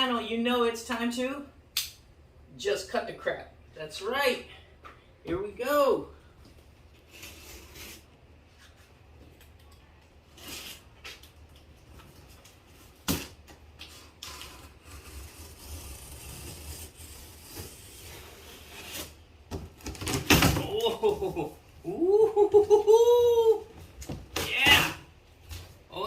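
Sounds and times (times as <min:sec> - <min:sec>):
knife cutting cardboard: 0:07.1 - 0:08.1, 0:13.0 - 0:19.2.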